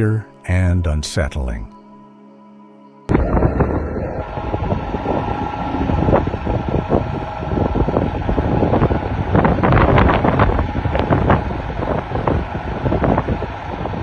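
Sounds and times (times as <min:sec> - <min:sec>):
wind buffeting microphone: 0:03.1 - 0:14.0.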